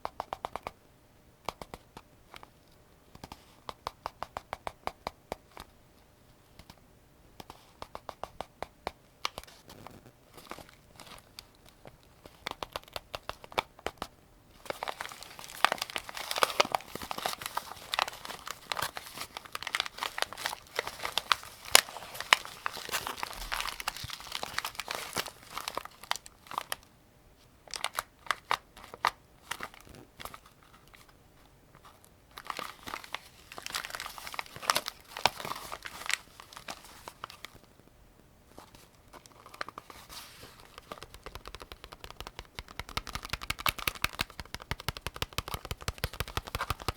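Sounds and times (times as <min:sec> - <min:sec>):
rustling: 0:38.5 - 0:46.9.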